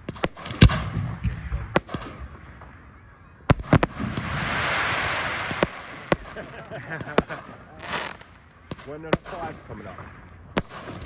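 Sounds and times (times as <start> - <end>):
fireworks bangs: 0.0 - 11.0
fireworks hiss: 3.5 - 9.5.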